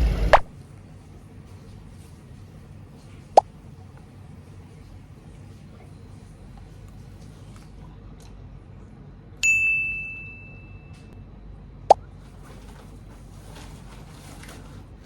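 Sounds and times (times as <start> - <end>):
bright bell-like ding: 9.4 - 11.1.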